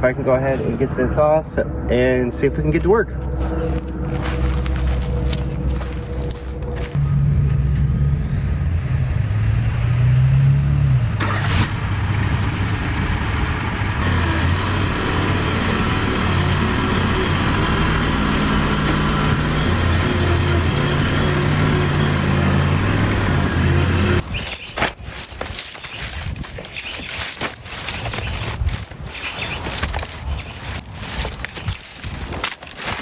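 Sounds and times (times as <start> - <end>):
stump grinder engine running: 2.6 - 7.0, 11.2 - 33.0.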